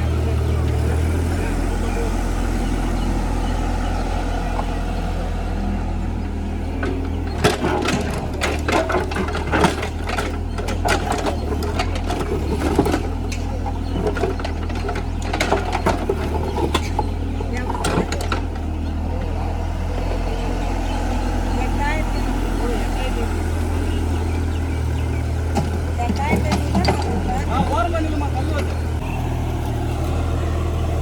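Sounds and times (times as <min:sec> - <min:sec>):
digger diesel engine running: 0:00.0 - 0:31.0
sharp knocks and clatter: 0:06.7 - 0:18.8, 0:25.4 - 0:29.0.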